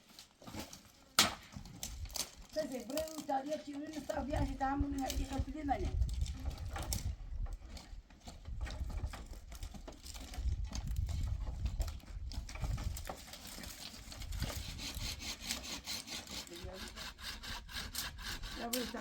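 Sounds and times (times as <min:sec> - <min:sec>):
knocks and scrapes: 0:00.0 - 0:19.0
hand saw cutting wood: 0:06.4 - 0:19.0.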